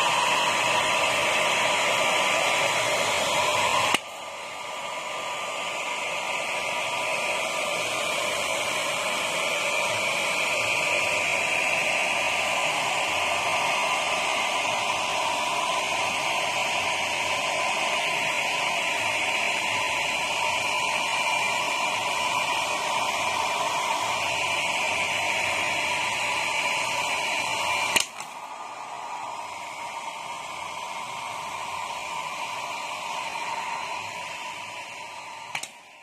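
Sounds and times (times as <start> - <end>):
hair dryer blowing: 0.0 - 36.0
hair dryer switch click: 3.8 - 4.2, 27.9 - 28.4, 35.5 - 35.8.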